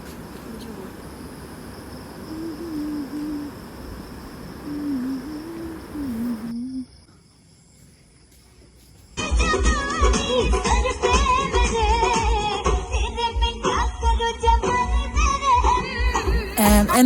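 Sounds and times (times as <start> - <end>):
crickets trilling: 0.0 - 9.9, 16.0 - 17.0
background hiss: 0.0 - 13.8, 15.9 - 17.0
music: 9.2 - 17.0.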